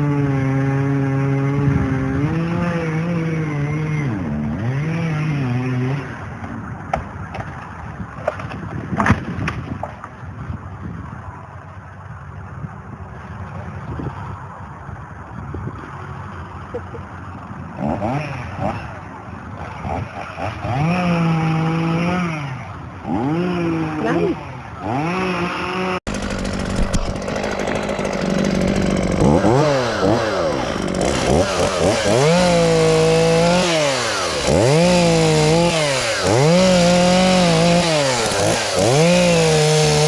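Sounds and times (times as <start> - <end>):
chainsaw running at high revs: 0.0 - 6.2, 17.8 - 19.0, 19.6 - 40.0.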